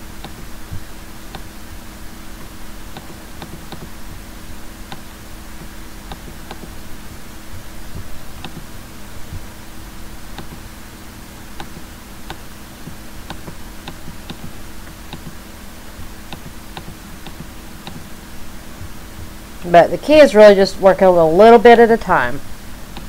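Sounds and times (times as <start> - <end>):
low electrical hum: 0.0 - 23.0
computer mouse clicking: 0.2 - 0.5, 1.3 - 1.5, 2.4 - 4.2, 4.9 - 6.8, 7.9 - 8.7, 10.4 - 10.6, 11.6 - 15.4, 16.3 - 18.1.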